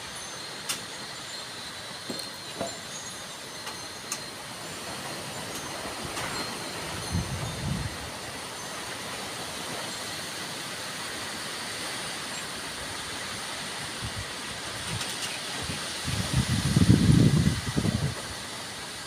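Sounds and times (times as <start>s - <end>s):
wind gusts buffeting microphone: 6.0s - 8.2s, 13.9s - 18.4s
strong wind blowing: 7.0s - 8.1s, 15.6s - 18.3s.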